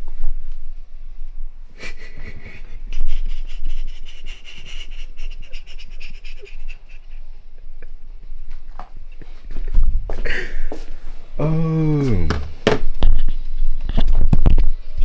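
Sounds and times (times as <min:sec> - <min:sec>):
sleeping person breathing heavily: 0:01.8 - 0:07.2.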